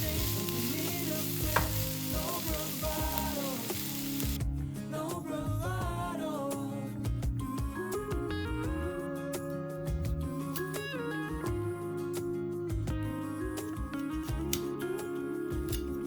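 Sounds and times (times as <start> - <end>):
food sizzling in a frying pan: 0.0 - 4.4
background song with singing: 0.0 - 16.0.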